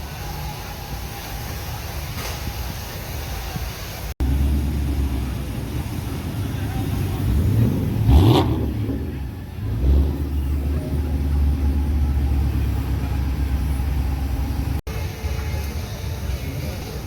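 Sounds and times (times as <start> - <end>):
car engine running: 4.2 - 14.9.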